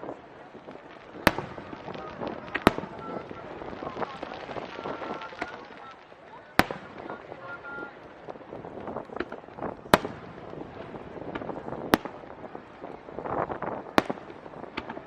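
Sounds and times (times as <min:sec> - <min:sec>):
firework crackles and pops: 0:00.0 - 0:15.0
firework shells bursting: 0:01.0 - 0:06.0.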